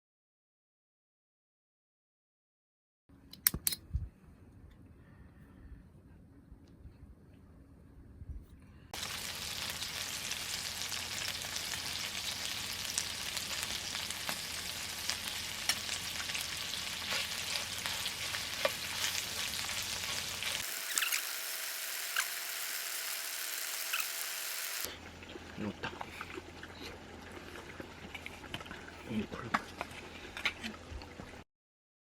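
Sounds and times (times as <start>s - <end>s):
food sizzling in a pan: 9.0s - 24.9s.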